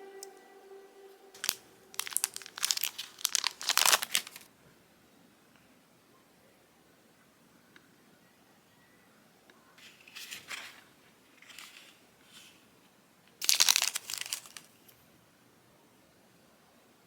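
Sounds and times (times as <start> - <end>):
plastic packaging crinkling: 1.4 - 4.5, 13.4 - 14.8.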